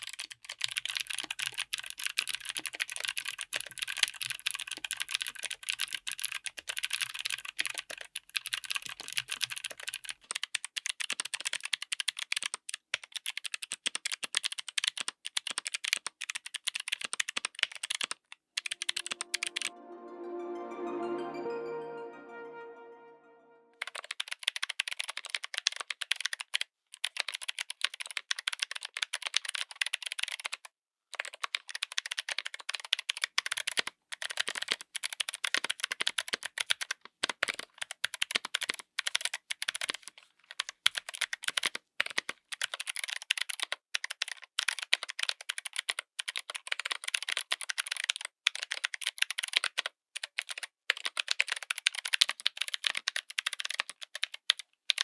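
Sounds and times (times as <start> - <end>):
typing on mechanical keyboard: 0.0 - 18.1, 25.2 - 30.6, 41.0 - 55.0.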